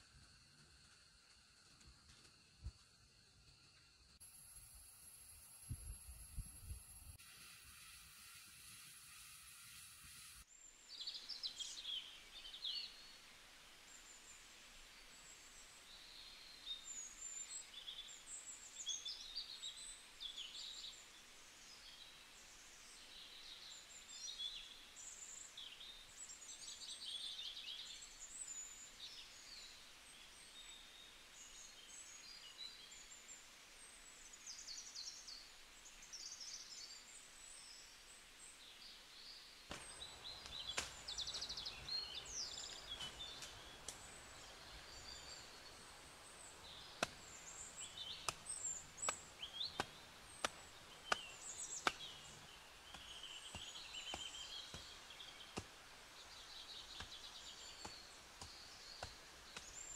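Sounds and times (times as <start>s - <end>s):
soft steady hiss: 0.0s - 59.9s
birds chirping and trilling: 38.7s - 59.9s.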